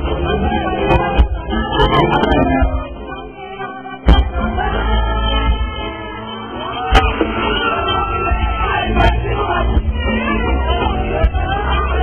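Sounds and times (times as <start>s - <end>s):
bass guitar: 0.0s - 12.0s
drums: 0.0s - 12.0s
live band music: 0.0s - 12.0s
person singing: 0.0s - 12.0s.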